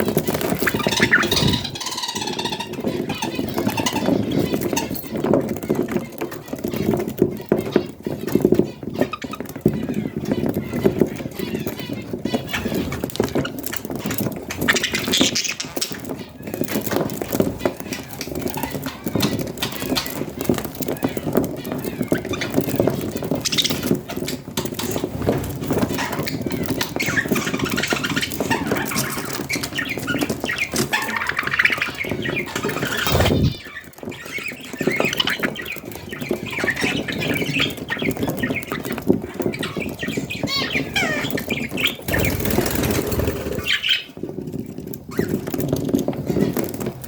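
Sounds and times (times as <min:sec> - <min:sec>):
budgerigars chattering and warbling: 0:00.0 - 0:44.2
bursts of noise: 0:33.0 - 0:33.7.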